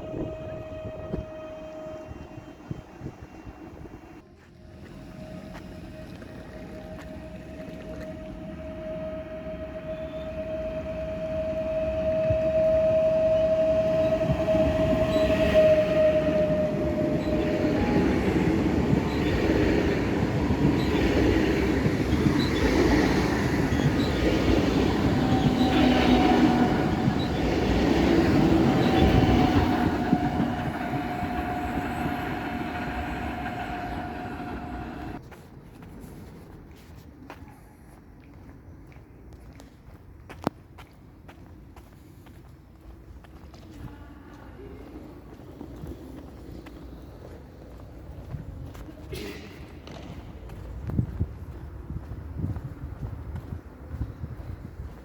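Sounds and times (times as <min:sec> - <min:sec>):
wheels rumbling on rails: 0:00.0 - 0:36.9
steady high whine: 0:22.0 - 0:35.2.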